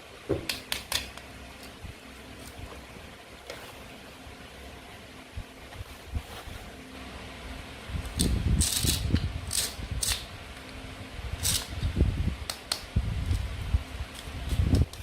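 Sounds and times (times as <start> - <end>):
plastic toy clicks and crackles: 8.1 - 10.3.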